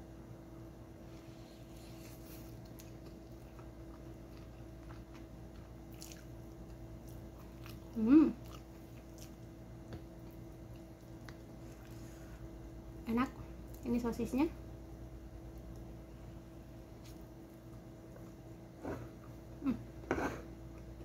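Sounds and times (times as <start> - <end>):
steady low hum: 0.0 - 21.0
person chewing food: 1.9 - 12.4.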